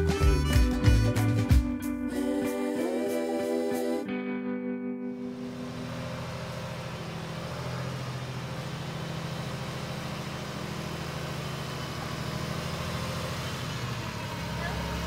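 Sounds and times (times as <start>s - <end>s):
vehicle engine idling: 5.2s - 15.0s.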